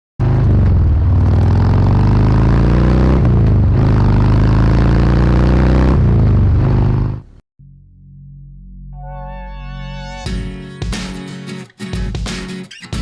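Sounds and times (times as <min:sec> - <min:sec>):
motorcycle engine accelerating: 0:00.2 - 0:08.4.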